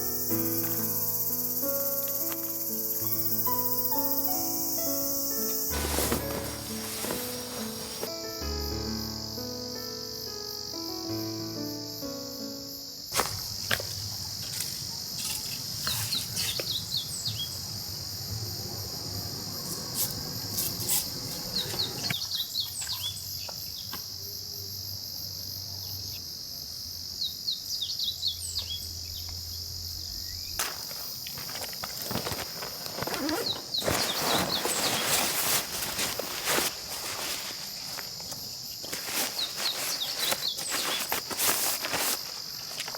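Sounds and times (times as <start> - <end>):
insect chorus droning: 0.0 - 42.9
rustling: 5.2 - 8.4, 30.6 - 42.9.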